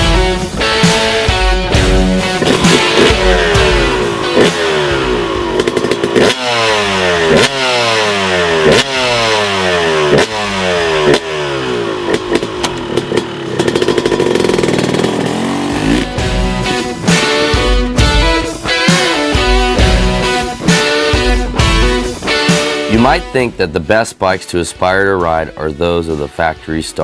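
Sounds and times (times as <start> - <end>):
dirt bike engine revving: 0.0 - 23.6
sharp engine cracks: 2.2 - 16.2.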